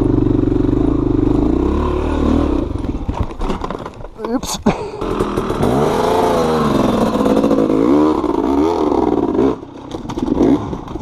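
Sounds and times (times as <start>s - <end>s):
off-road vehicle engine revving: 0.0s - 3.0s, 5.0s - 9.6s.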